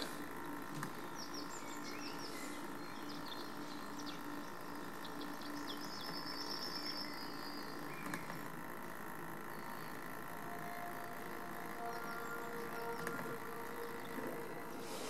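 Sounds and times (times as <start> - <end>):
small birds chirping: 0.0 - 15.0
steady low hum: 0.0 - 15.0
bird trill: 9.5 - 14.8.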